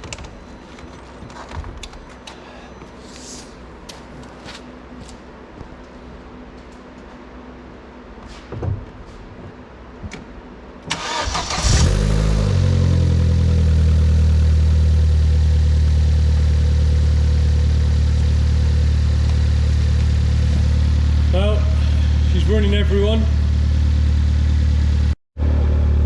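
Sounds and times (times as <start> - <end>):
starter motor cranking: 10.9 - 12.0
car engine revving and idling: 11.0 - 26.0.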